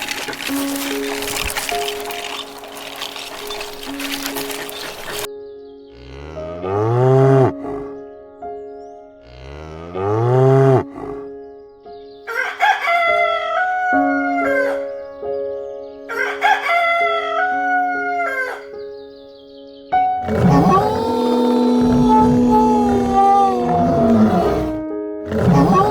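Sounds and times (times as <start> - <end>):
low animal calls: 0.0 - 5.3, 6.0 - 8.0, 20.2 - 25.9
background music: 0.0 - 25.9
rooster crowing: 12.3 - 14.8, 16.1 - 18.7.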